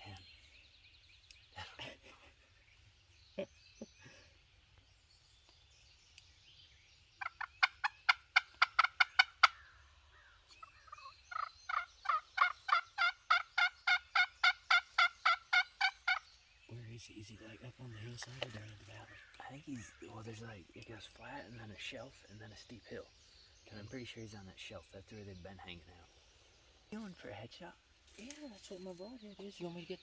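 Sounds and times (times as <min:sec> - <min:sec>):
turkey yelping: 0:07.2 - 0:09.6, 0:10.6 - 0:16.3.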